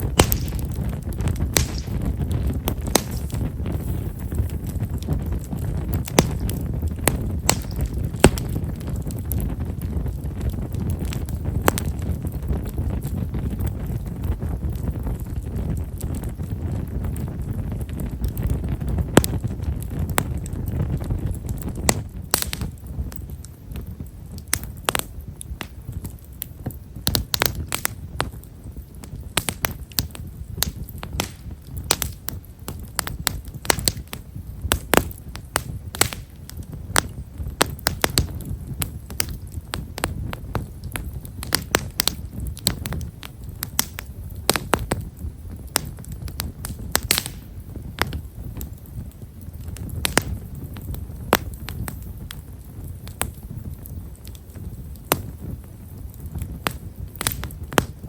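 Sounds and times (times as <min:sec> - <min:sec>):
low rush of flames: 0:00.0 - 0:58.0
wood fire crackling and popping: 0:00.0 - 0:58.0.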